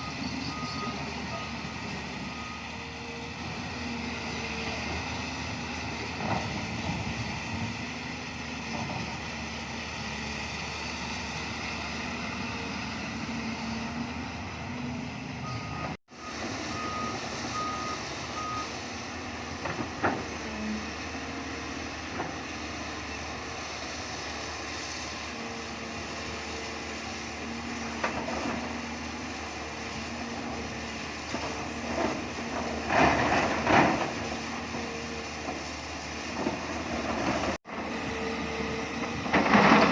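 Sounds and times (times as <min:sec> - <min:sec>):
reversing alarm beeps: 0:00.0 - 0:02.9, 0:15.4 - 0:18.8
excavator diesel engine running: 0:00.0 - 0:39.9
loud knocks and scraping: 0:39.2 - 0:39.9.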